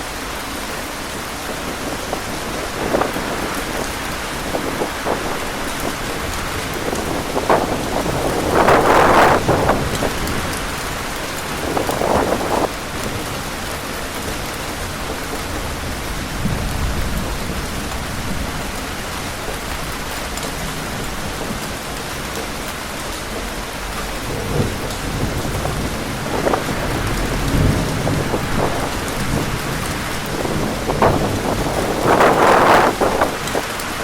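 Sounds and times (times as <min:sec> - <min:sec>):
heavy rain pouring: 0:00.0 - 0:34.0
wind gusting: 0:00.0 - 0:34.0
low rumbles: 0:20.9 - 0:33.6.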